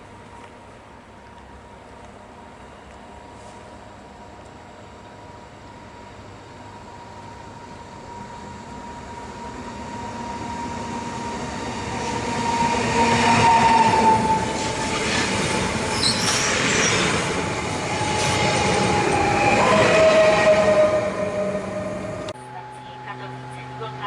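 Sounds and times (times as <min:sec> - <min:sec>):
high steady train whine: 0:00.0 - 0:24.0
train wheels on rails: 0:06.4 - 0:22.4.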